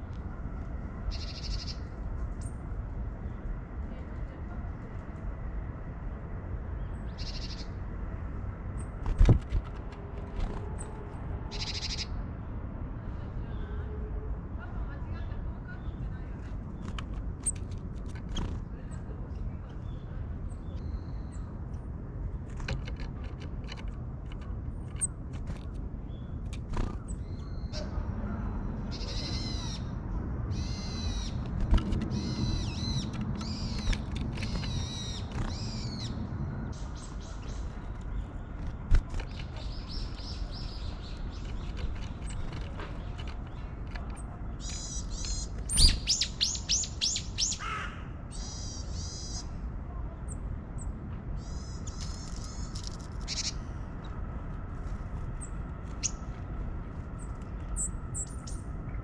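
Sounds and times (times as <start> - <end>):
small birds high calls: 1.1 - 2.6, 6.8 - 7.9, 11.5 - 12.2, 28.8 - 49.6, 50.3 - 54.2.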